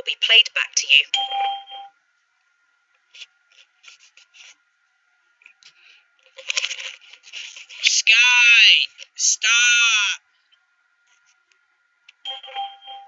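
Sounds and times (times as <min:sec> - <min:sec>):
faint scraping and rustling: 0:03.0 - 0:04.7, 0:05.4 - 0:08.0, 0:10.3 - 0:11.6.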